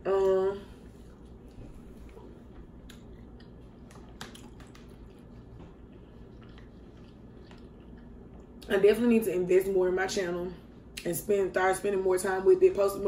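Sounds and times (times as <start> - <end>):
faint room hum: 0.0 - 13.0
person chewing: 0.8 - 8.7
wet mouth smacks and clicks: 2.8 - 5.3.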